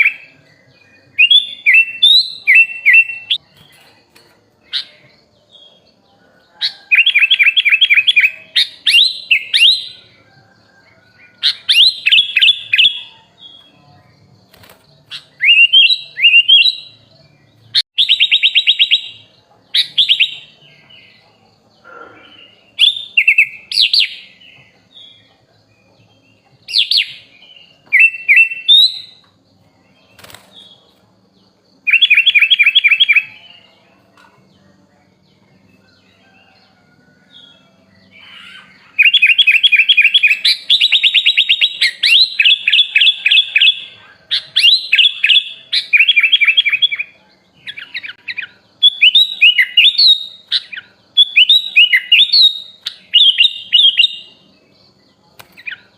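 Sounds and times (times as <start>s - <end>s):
bulbul whistled song: 6.6s - 10.3s, 14.6s - 17.1s, 17.7s - 20.7s, 37.3s - 54.5s.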